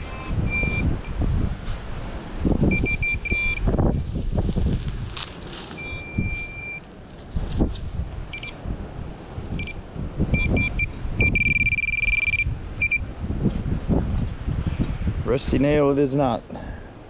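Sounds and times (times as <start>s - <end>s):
metal detector beeping: 0.0s - 1.2s, 2.7s - 3.7s, 5.8s - 6.9s, 8.3s - 8.6s, 9.6s - 13.1s
wind rumble on microphone: 0.0s - 16.8s.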